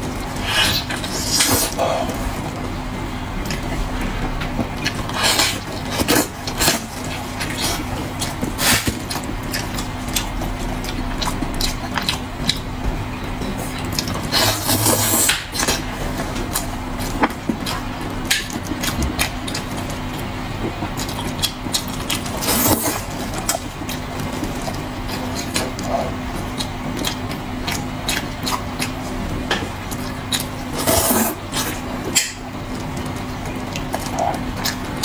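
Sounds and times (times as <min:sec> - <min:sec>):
steady low hum: 0:00.0 - 0:35.0
mouth clicks and smacks chewing: 0:07.0 - 0:12.6, 0:13.7 - 0:14.2, 0:16.5 - 0:22.3, 0:23.3 - 0:29.0.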